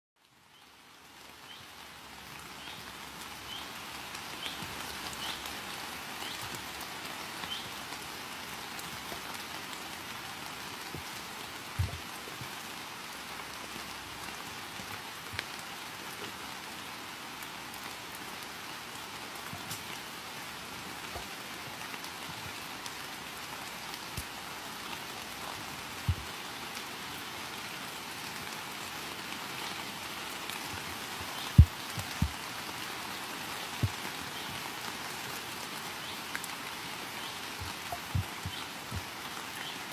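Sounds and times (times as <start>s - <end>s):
steady rain falling: 0.2s - 39.9s
dull low thumps: 11.8s - 12.1s, 26.1s - 26.3s, 30.8s - 32.4s, 37.6s - 39.1s.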